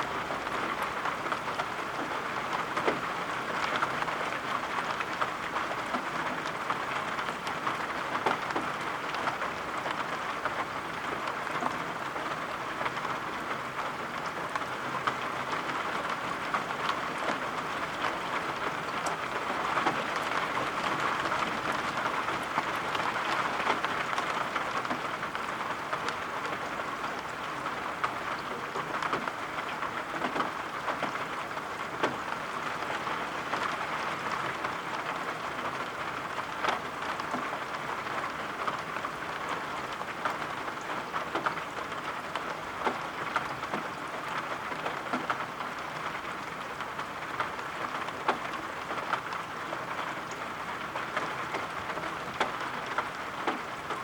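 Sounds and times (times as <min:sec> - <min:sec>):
steady rain hiss: 0:00.0 - 0:54.0
raindrops tapping: 0:13.7 - 0:54.0.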